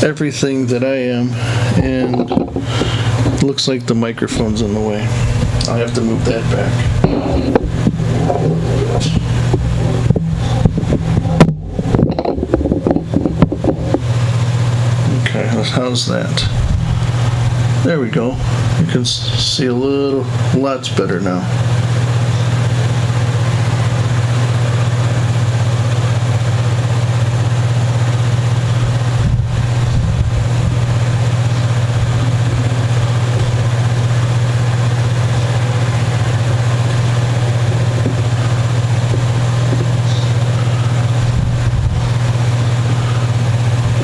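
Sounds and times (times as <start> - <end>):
steady low hum: 0.0 - 44.0
faint low bumps: 4.1 - 14.6.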